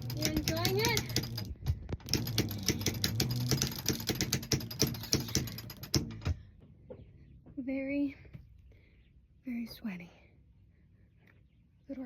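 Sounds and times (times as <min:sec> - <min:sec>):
winch clicking rapidly: 0:00.0 - 0:06.3.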